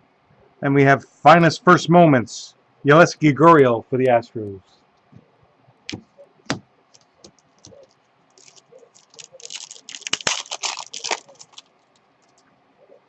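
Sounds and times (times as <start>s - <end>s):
packaging crinkling and rustling: 6.9s - 12.5s.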